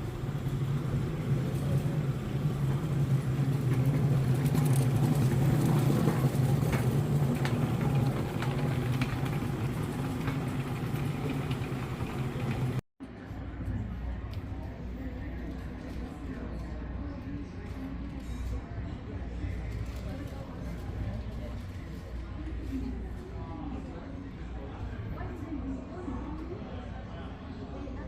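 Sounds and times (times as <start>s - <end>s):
vehicle running hum: 0.0s - 12.8s.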